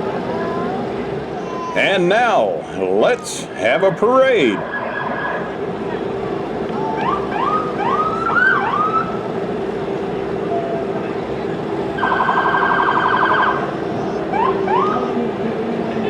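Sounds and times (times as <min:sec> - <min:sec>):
steady low hum: 0:00.0 - 0:16.0
siren whoops: 0:06.8 - 0:09.2.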